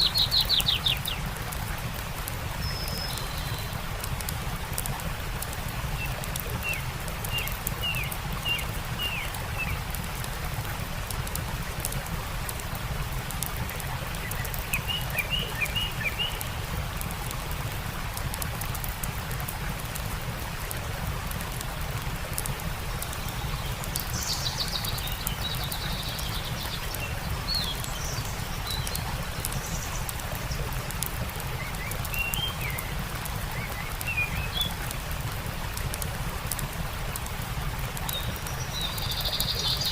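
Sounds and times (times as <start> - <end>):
small birds chirping: 0.0 - 17.8, 21.4 - 39.9
campfire crackling: 0.0 - 39.9
stream running: 0.0 - 39.9.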